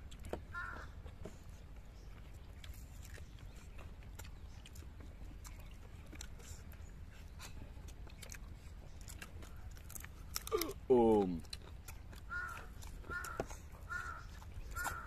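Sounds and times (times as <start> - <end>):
man chewing wetly: 0.0 - 15.0
bird calling: 0.5 - 1.0, 12.3 - 15.0.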